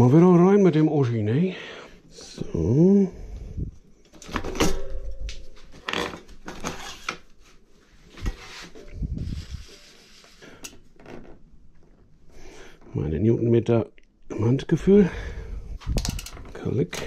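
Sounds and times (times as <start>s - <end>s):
tools handled: 15.8s - 16.5s.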